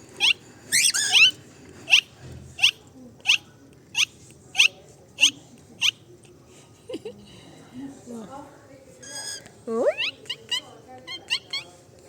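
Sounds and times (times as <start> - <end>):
cockatiel chirping: 0.2 - 3.4, 9.0 - 11.7.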